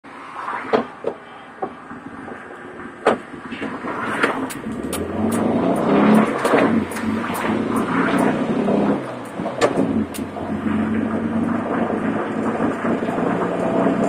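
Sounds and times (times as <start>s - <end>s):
car engine pulling away: 2.9s - 14.0s
sharp knocks and clicks: 3.0s - 10.4s.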